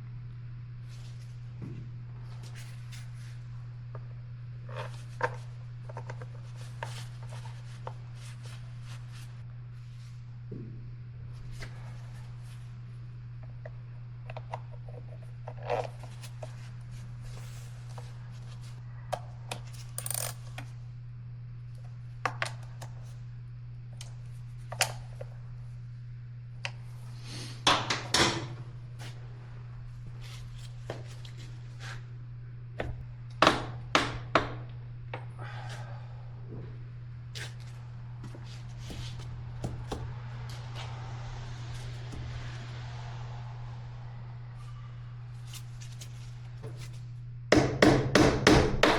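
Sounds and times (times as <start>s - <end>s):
steady low hum: 0.0s - 48.9s
metal tools clinking: 20.0s - 20.4s.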